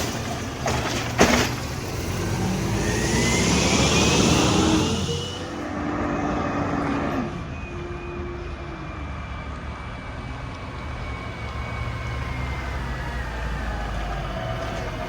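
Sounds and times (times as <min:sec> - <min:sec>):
diesel truck engine idling: 0:00.0 - 0:05.8
thin high whine: 0:03.4 - 0:05.8.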